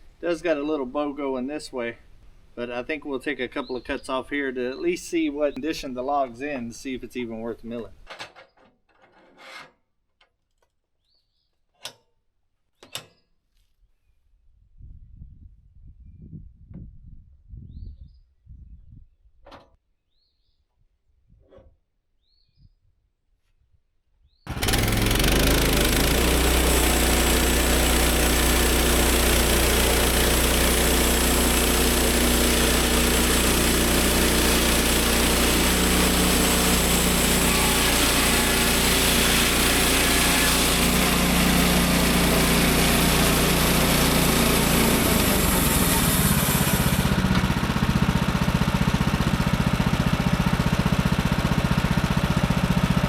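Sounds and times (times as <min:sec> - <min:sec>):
band saw blade cutting log: 0:24.5 - 0:49.3
gas engine running: 0:24.5 - 0:53.0.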